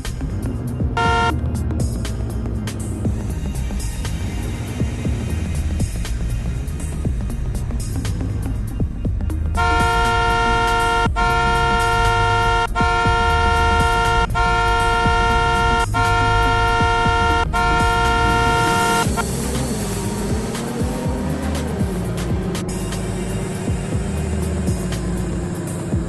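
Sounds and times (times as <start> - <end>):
background music with beat: 0.0 - 26.0
two-tone vehicle horn blasts: 1.0 - 1.6, 9.5 - 19.2.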